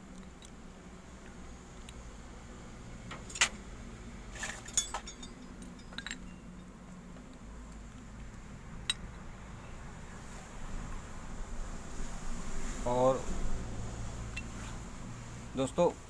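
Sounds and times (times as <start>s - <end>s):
small hard parts clinking: 4.3s - 6.8s.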